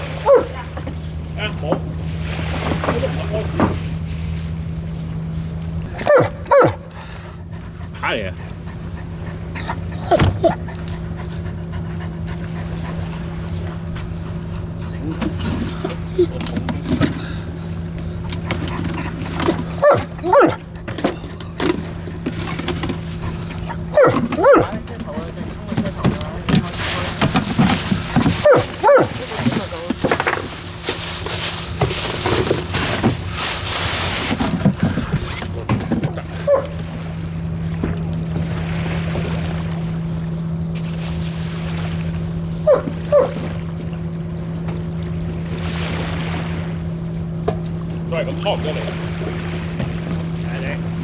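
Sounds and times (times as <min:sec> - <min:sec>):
dog whining: 0:00.0 - 0:01.5, 0:05.8 - 0:26.2, 0:27.4 - 0:29.7, 0:34.6 - 0:36.8, 0:42.6 - 0:43.7
low motor hum: 0:00.0 - 0:51.0
water noise: 0:00.0 - 0:51.0
wind: 0:00.0 - 0:51.0.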